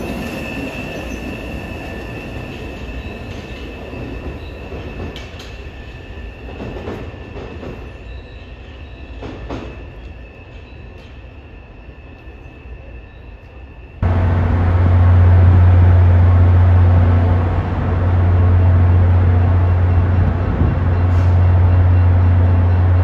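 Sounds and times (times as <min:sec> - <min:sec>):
train rumbling low: 0:10.8 - 0:23.0
station platform hum: 0:14.0 - 0:23.0.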